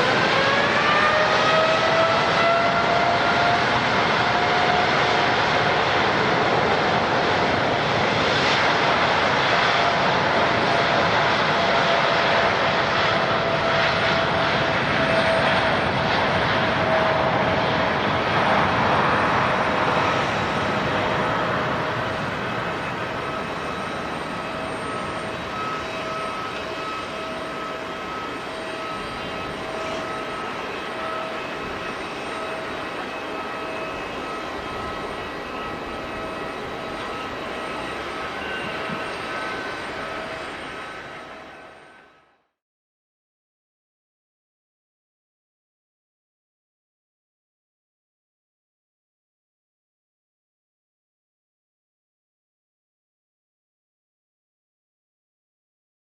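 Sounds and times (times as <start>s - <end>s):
airliner engines whining: 0.0s - 42.3s.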